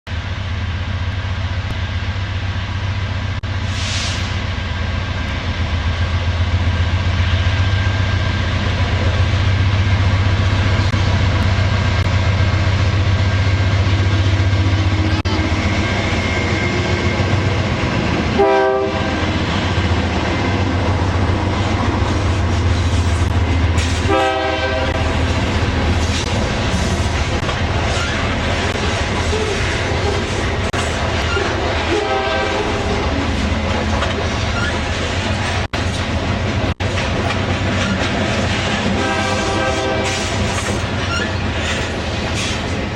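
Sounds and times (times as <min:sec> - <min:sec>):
diesel locomotive engines droning: 0:00.1 - 0:42.9
train wheels clattering: 0:15.7 - 0:42.9
train horn blasts: 0:18.3 - 0:19.4, 0:24.0 - 0:25.2, 0:31.9 - 0:32.9, 0:38.9 - 0:40.4.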